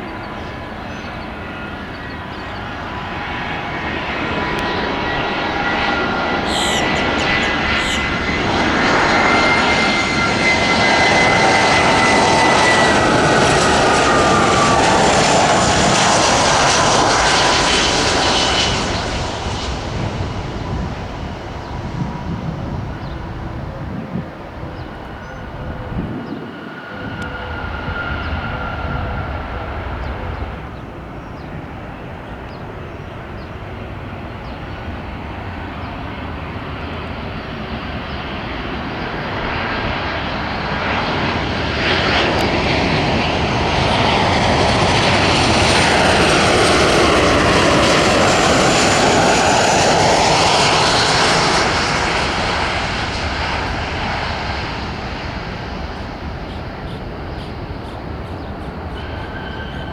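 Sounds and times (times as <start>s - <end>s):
jet airliner passing: 0.0s - 59.9s.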